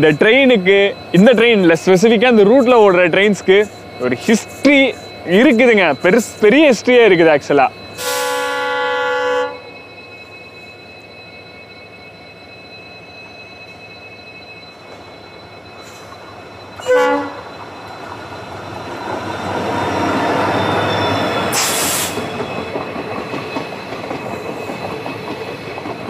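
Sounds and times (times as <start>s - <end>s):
coaches rumbling over rails: 0.0s - 26.0s
diesel locomotive passing: 0.0s - 26.0s
train horn blast: 8.0s - 9.7s, 16.8s - 17.4s.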